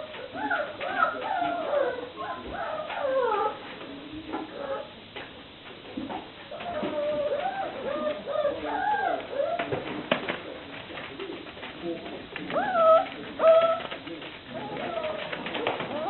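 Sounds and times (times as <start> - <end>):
puppies whining: 0.0 - 3.6, 6.5 - 9.9, 12.5 - 16.0
puppy yelps: 12.5 - 14.0.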